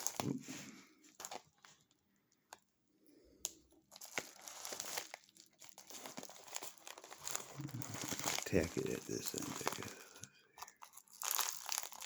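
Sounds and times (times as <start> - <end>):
packaging crinkling and rustling: 0.0 - 2.6, 3.4 - 12.0.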